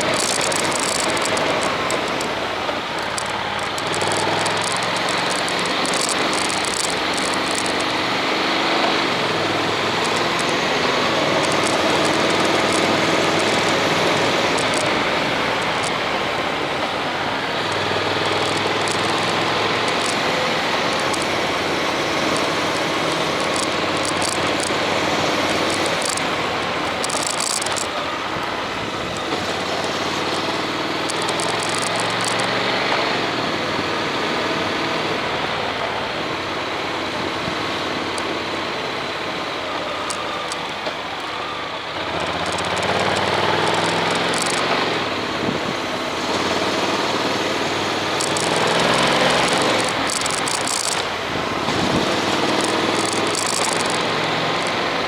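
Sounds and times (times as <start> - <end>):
motorcycle engine running: 0.0 - 55.0
road noise: 0.0 - 55.0
wind noise: 42.2 - 46.9, 47.6 - 55.0.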